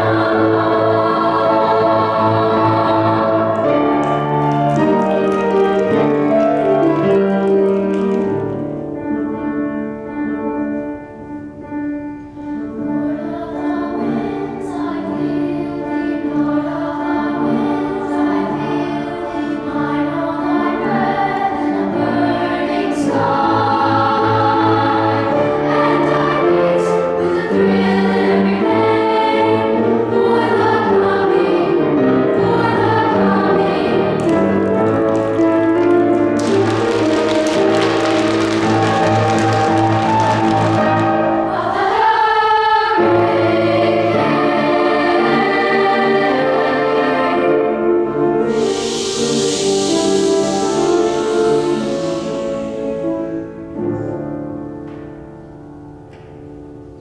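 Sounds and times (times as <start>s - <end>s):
children's choir singing: 0.0s - 10.0s, 12.2s - 55.5s.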